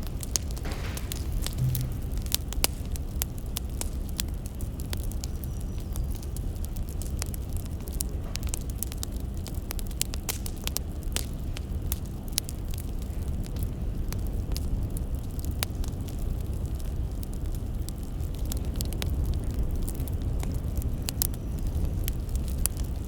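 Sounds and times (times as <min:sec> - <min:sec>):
fire low rumble: 0:00.0 - 0:23.0
firewood crackling and popping: 0:00.0 - 0:23.0.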